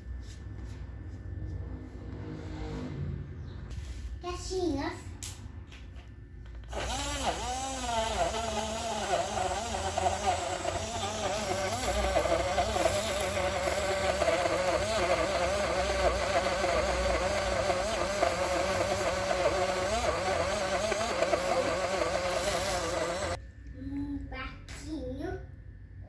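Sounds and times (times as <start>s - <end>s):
blender motor whining: 6.6s - 23.4s.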